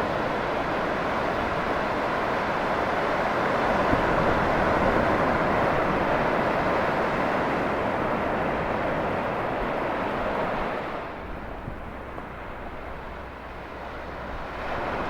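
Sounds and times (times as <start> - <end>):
ocean waves breaking: 0.0 - 15.0.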